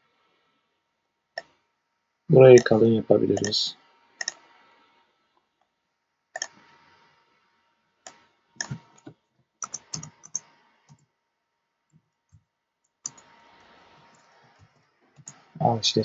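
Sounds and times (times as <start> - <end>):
computer keyboard typing: 2.6 - 2.8, 3.4 - 3.6, 6.4 - 6.6, 8.6 - 11.0, 13.0 - 13.3.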